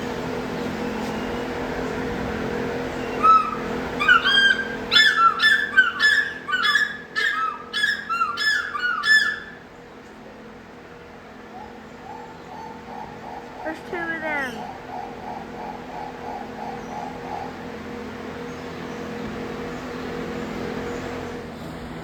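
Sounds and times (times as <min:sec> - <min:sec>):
hornbill nasal clucking squawks: 0:03.1 - 0:09.6, 0:11.5 - 0:18.0.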